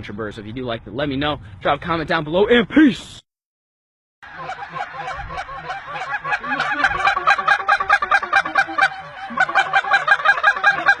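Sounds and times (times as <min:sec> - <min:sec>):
geese honking: 0:04.2 - 0:11.0.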